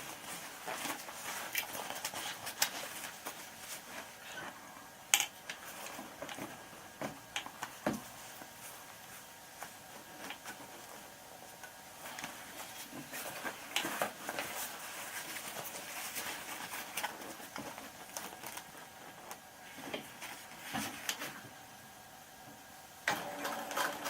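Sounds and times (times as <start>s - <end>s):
fabric being handled: 0.0s - 4.5s, 7.6s - 21.4s
sewing machine running: 23.1s - 24.0s.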